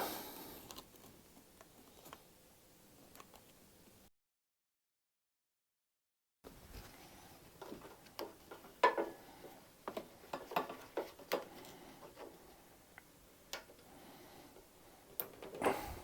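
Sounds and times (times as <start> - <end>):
plastic parts clicking and knocking: 7.6 - 9.2, 9.8 - 12.4, 15.1 - 15.6.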